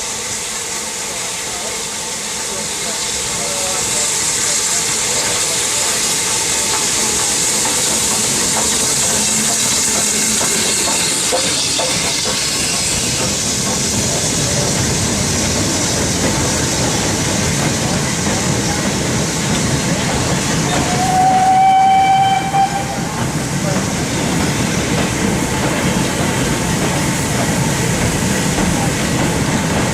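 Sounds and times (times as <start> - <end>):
low rumble of train: 0.0 - 29.9
steam hissing: 0.0 - 29.9
steam locomotive whistle: 20.7 - 23.2.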